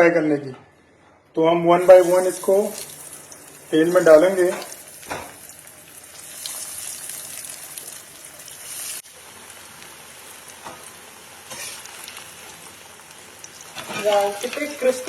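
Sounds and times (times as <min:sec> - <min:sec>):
food deep-frying in hot oil: 0:01.7 - 0:15.0.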